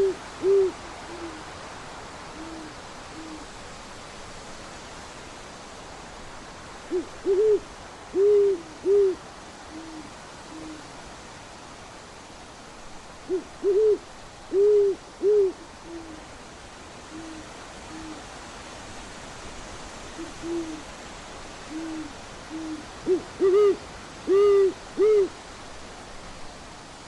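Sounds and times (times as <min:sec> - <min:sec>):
owl hooting: 0:00.0 - 0:01.4, 0:02.3 - 0:03.5, 0:06.9 - 0:10.9, 0:13.3 - 0:16.2, 0:17.1 - 0:18.3, 0:20.2 - 0:20.9, 0:21.7 - 0:25.4
background hiss: 0:00.0 - 0:27.0.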